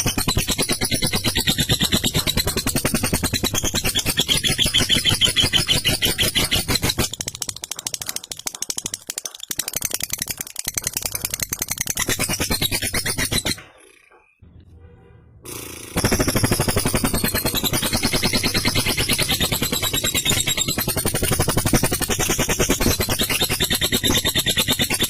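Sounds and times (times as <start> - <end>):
bird rattling chatter: 0.0 - 14.4, 15.9 - 25.0.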